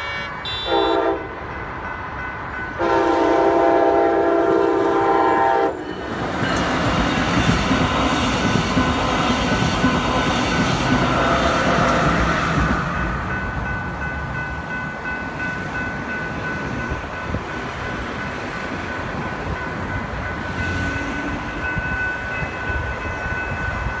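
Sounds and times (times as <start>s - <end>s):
crossing warning bells: 0.0s - 24.0s
locomotive rumbling past: 0.0s - 24.0s.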